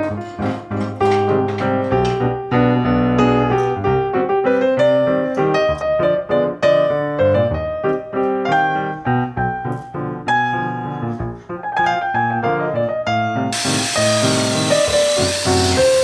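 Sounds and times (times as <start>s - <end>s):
piano melody over chords: 0.0s - 16.0s.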